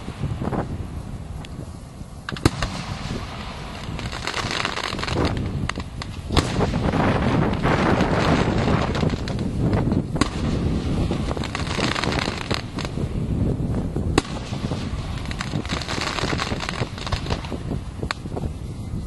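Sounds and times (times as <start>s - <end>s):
fireworks bangs and crackling: 0.0s - 18.9s
loud firework bang: 2.3s - 13.0s, 14.1s - 18.2s.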